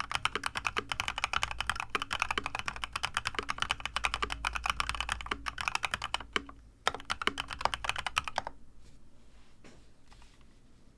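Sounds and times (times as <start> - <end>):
fast typing on mechanical keyboard: 0.0 - 8.5.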